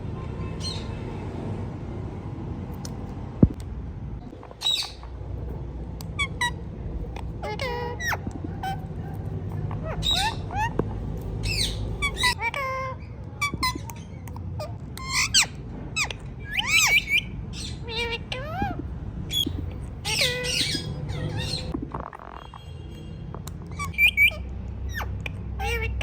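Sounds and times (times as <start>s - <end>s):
parrot squawking: 4.6s - 5.1s, 6.0s - 22.7s, 23.6s - 26.0s.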